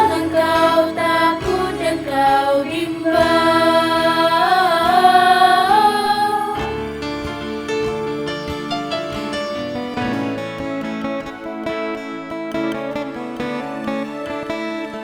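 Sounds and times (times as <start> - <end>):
choir singing: 0.0 - 10.6.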